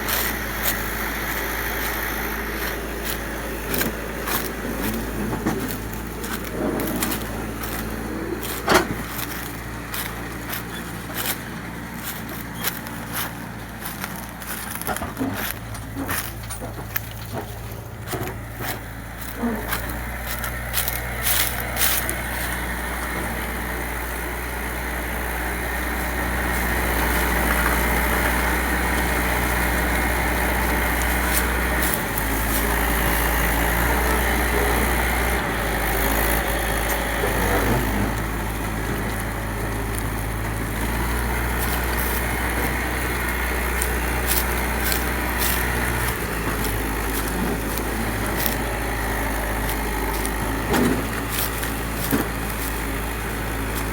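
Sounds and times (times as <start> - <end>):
sharp clicks and rattles: 0.0 - 23.1
tractor engine running: 0.0 - 53.9.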